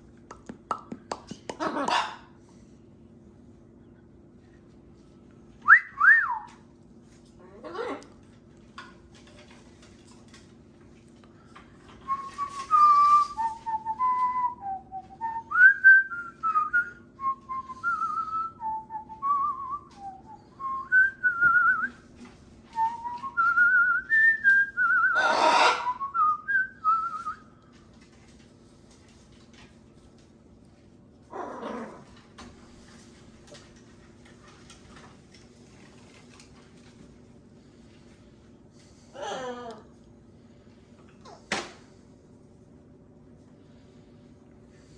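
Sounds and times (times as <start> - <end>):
faint steady hum: 0.0 - 44.9
macaw squawk: 25.2 - 26.0.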